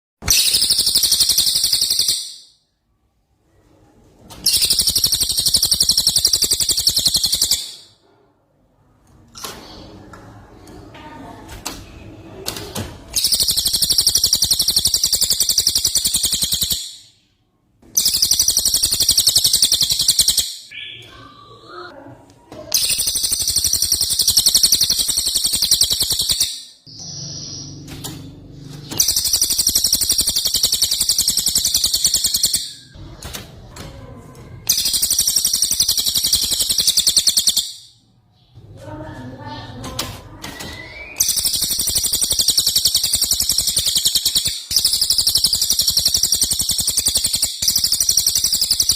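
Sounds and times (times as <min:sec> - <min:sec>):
bird singing fast high trills: 0:00.3 - 0:02.5, 0:22.9 - 0:27.9, 0:29.0 - 0:32.9, 0:40.9 - 0:48.9
bird twittering: 0:00.3 - 0:02.5, 0:04.4 - 0:07.9, 0:13.1 - 0:17.1, 0:18.0 - 0:21.9, 0:22.8 - 0:33.0, 0:34.7 - 0:38.6, 0:40.6 - 0:48.9.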